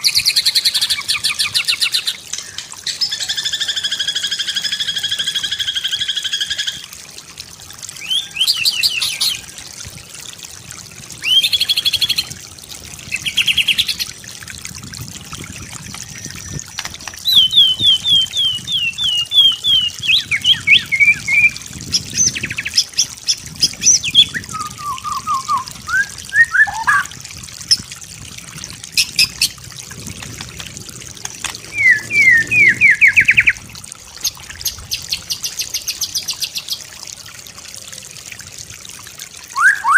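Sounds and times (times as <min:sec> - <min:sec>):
songbird singing trills: 0:16.0 - 0:27.1, 0:31.7 - 0:33.6.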